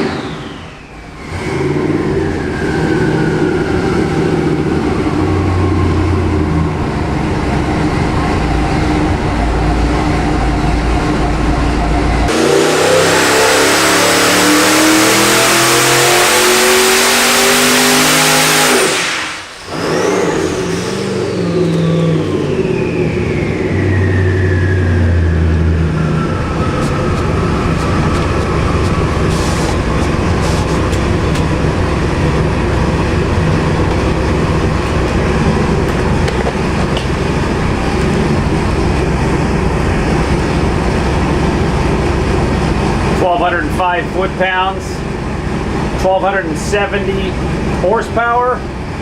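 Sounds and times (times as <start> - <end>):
turbocharger whistle spooling down: 0.0 - 6.6, 9.0 - 30.0
engine idling: 0.0 - 12.4, 19.3 - 49.0
engine at full throttle: 0.0 - 49.0.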